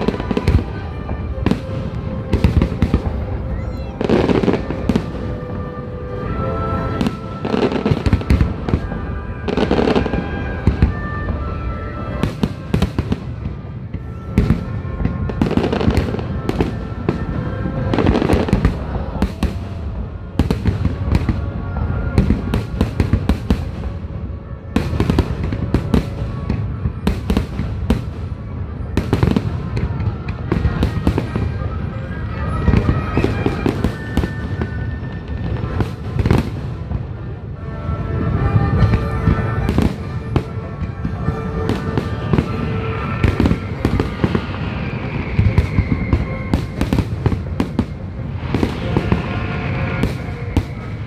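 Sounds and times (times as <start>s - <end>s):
fireworks bangs and crackles: 0.0s - 51.0s
music playing: 0.0s - 51.0s.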